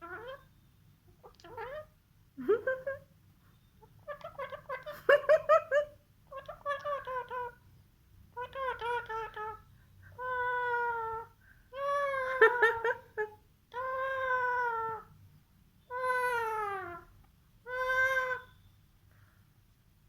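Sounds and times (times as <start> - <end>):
bird meow-like calls: 15.9 - 17.1, 17.7 - 18.7.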